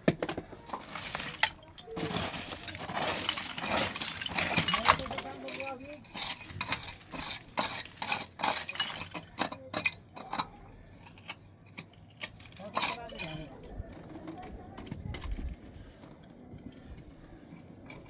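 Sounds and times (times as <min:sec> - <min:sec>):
small hard objects clinking: 0:00.1 - 0:13.6.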